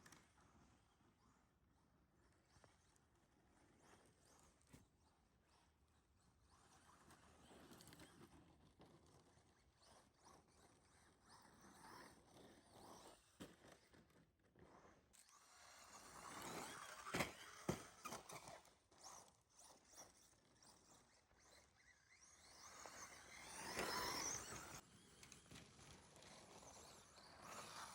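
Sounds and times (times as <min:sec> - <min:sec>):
rc truck motor whine: 0:14.6 - 0:27.9.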